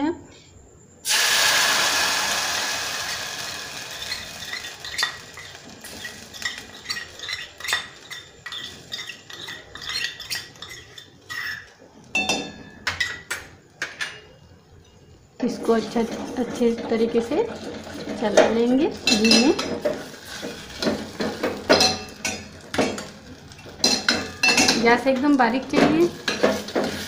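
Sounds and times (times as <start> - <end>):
paste sizzling in hot ghee: 1.0 - 11.6, 18.8 - 27.0
steel spoon scraping and clinking: 3.8 - 13.2, 26.0 - 27.0.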